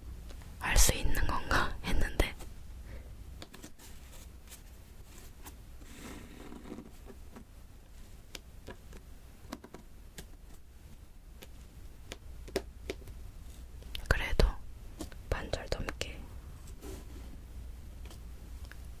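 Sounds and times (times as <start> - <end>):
soft scraping rustle: 3.6 - 7.1, 16.6 - 17.4.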